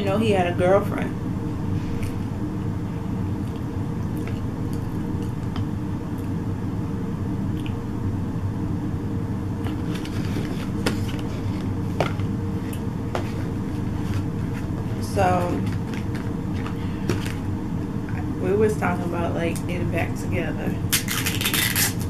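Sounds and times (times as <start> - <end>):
steady low hum: 0.0 - 22.0
chewing with mouth closed: 3.4 - 6.4
paper box crinkling: 9.7 - 12.3, 13.2 - 17.4.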